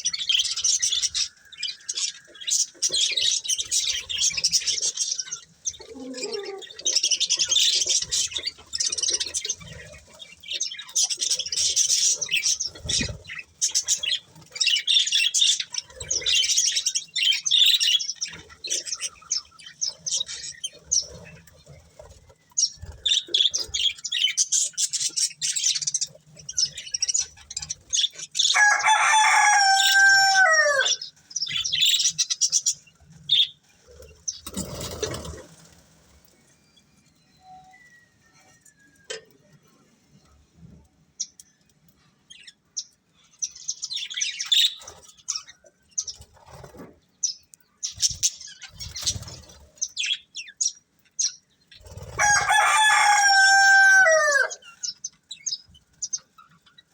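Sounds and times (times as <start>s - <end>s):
budgerigars chattering and chirping: 0.0s - 35.7s, 42.4s - 56.9s
loud falling bird call: 28.5s - 31.0s, 52.2s - 54.6s.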